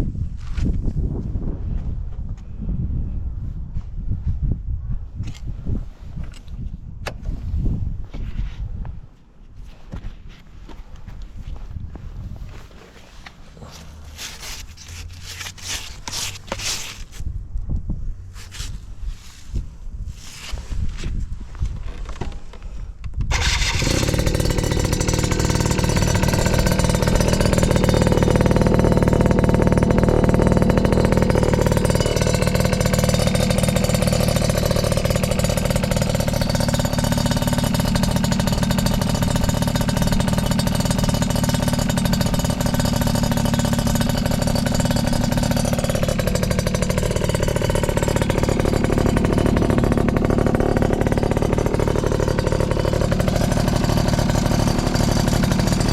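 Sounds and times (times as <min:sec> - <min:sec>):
two-stroke scooter engine idling: 0:23.3 - 0:55.9.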